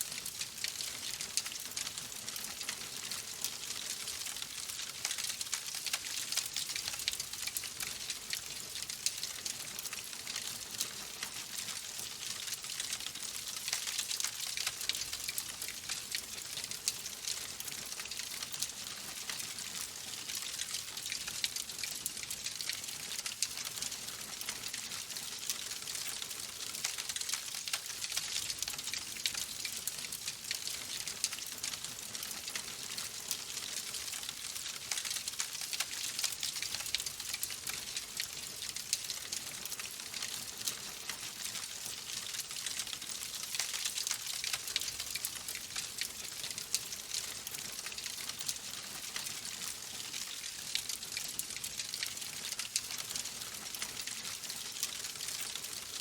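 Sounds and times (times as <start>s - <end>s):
logs crackling in fireplace: 0.2s - 56.0s.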